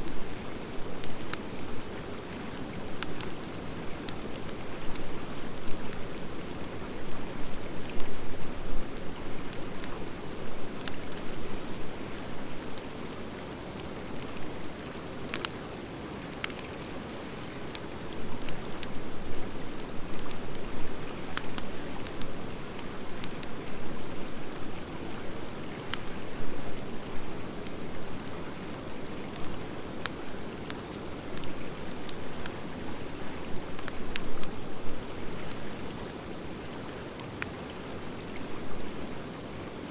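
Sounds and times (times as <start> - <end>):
fire crackling and popping: 0.0 - 39.7
campfire flames rushing: 8.9 - 39.9.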